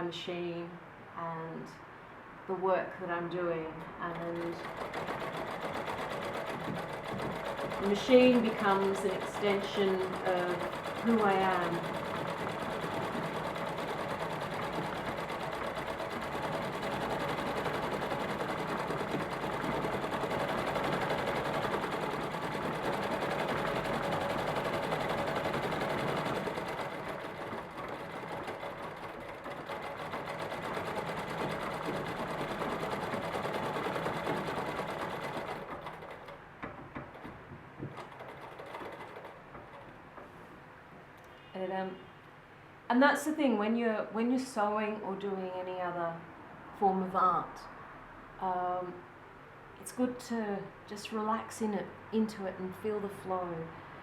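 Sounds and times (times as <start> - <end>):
sewing machine stitching: 3.6 - 40.0.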